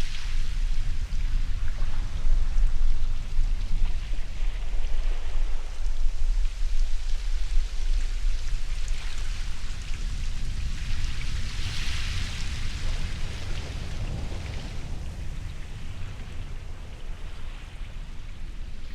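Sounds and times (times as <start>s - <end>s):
ocean waves rumbling: 9.7s - 18.9s.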